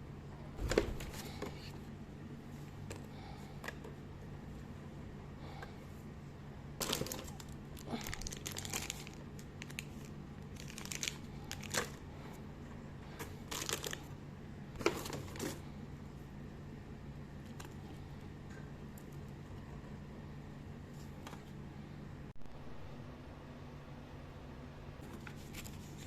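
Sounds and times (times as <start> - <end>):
steady low hum: 0.0 - 26.0
packaging crinkling: 6.8 - 12.0, 13.4 - 14.1.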